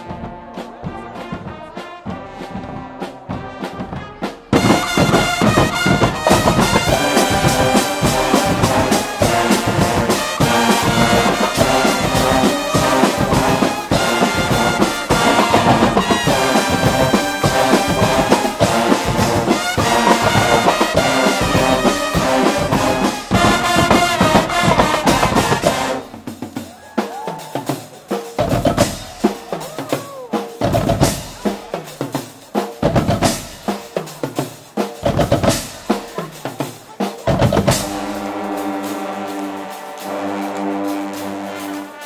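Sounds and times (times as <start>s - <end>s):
brass band playing: 0.0s - 42.0s
snare and bass drum hits: 3.7s - 26.3s, 35.0s - 36.2s, 37.2s - 38.4s.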